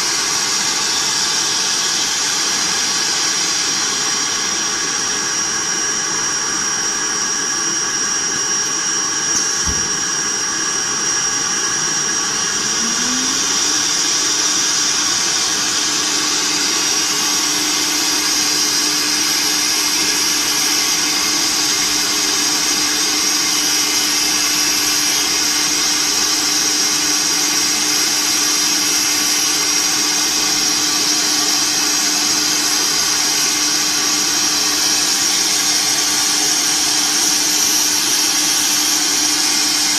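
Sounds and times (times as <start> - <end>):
cnc router machine noise: 0.0 - 39.9
high whine: 9.1 - 31.2.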